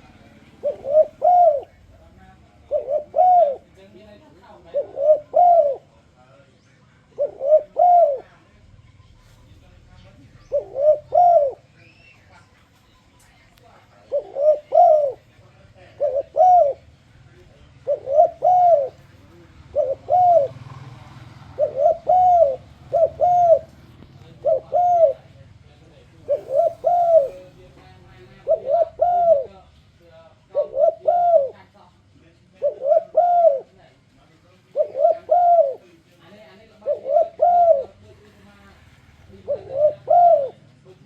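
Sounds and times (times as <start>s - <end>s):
dove cooing: 0.0s - 1.9s, 2.5s - 6.2s, 7.0s - 8.4s, 10.4s - 12.2s, 13.8s - 25.4s, 26.0s - 29.8s, 30.4s - 31.9s, 32.5s - 34.0s, 34.6s - 36.1s, 36.7s - 38.2s, 39.2s - 40.9s.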